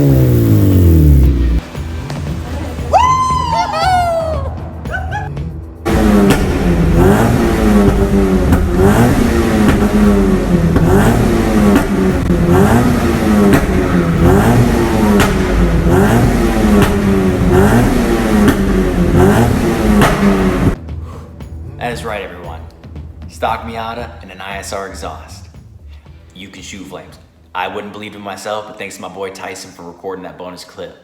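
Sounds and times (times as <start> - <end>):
exhaust cracks: 0.0 - 1.6, 5.8 - 20.8
car engine revving: 0.0 - 1.7, 5.8 - 20.8.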